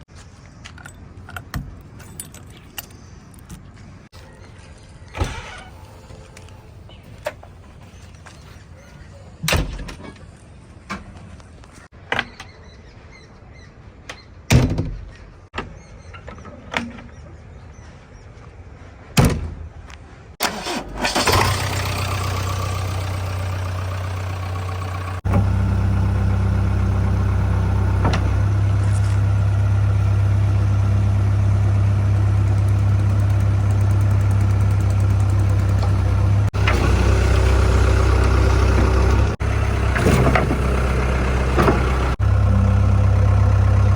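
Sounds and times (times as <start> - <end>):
diesel engine running: 20.4 - 43.9.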